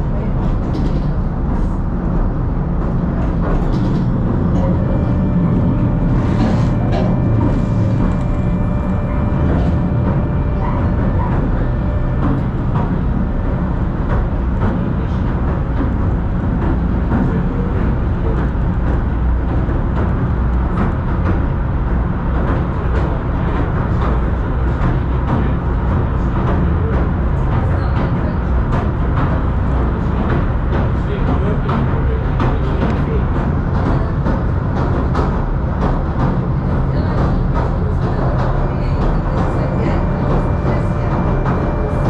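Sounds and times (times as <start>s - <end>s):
train low rumble: 0.0s - 42.0s
faint whine: 2.8s - 18.4s.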